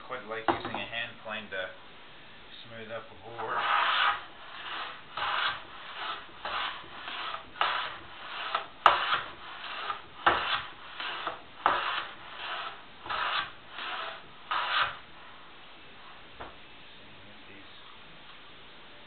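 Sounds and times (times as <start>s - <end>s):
hand plane rasping on wood: 3.4s - 15.0s.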